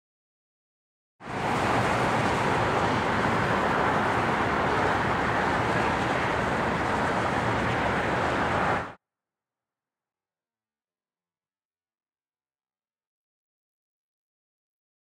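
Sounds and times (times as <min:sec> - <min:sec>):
urban traffic roar: 0:01.2 - 0:09.0.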